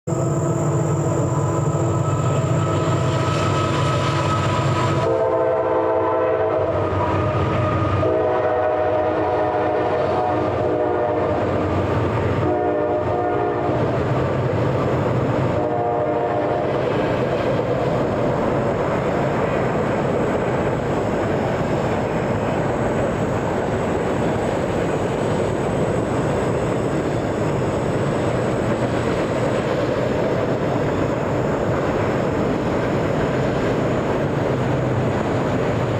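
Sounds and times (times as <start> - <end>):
locomotive engine: 0.1 - 5.6
train clattering on rails: 0.7 - 5.3, 6.0 - 35.9
train air horn blasts: 1.8 - 11.6, 12.3 - 14.0, 15.5 - 16.8.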